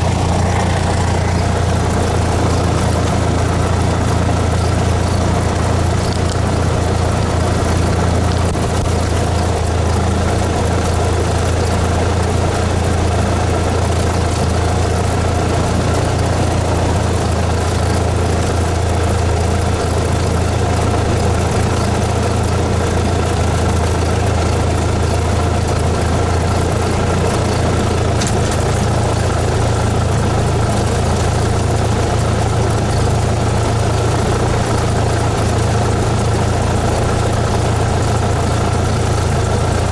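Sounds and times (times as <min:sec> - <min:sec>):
light aircraft engine and propeller: 0:00.0 - 0:39.9.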